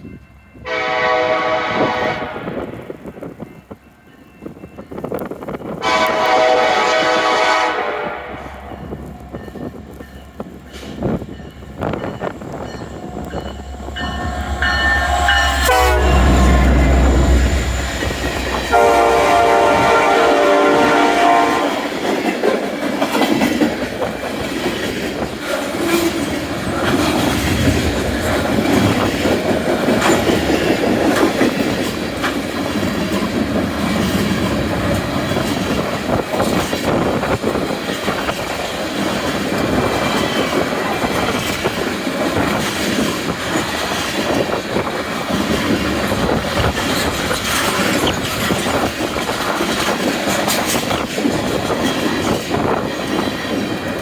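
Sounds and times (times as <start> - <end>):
train running noise: 0.0 - 54.0
train wheels clicking over rail joints: 8.8 - 19.4, 21.6 - 54.0.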